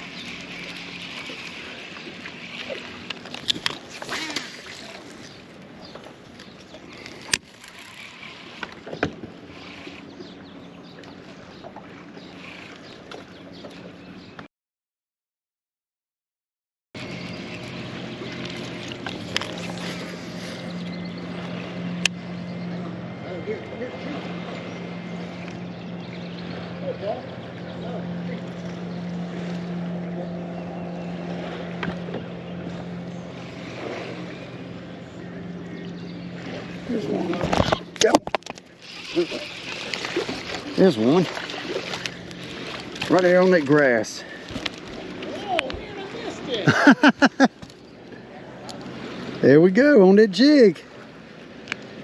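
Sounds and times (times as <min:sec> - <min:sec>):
boat engine hum: 0:00.0 - 0:14.5, 0:17.0 - 0:52.0
water noise: 0:00.0 - 0:14.5, 0:17.0 - 0:52.0.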